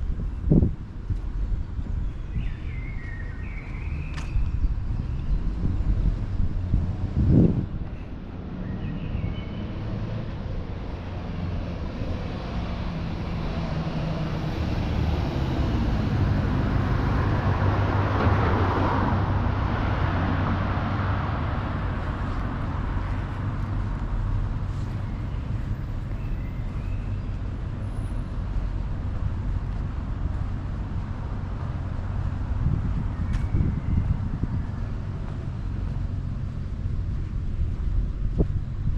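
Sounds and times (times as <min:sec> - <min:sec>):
low rumble of traffic: 0:00.0 - 0:38.9
vehicle passing close by: 0:05.4 - 0:25.8.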